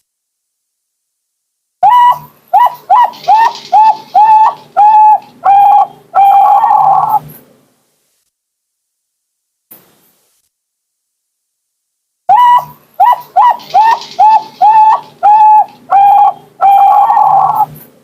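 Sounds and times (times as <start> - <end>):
dove cooing song: 1.8 - 7.3, 12.3 - 17.8.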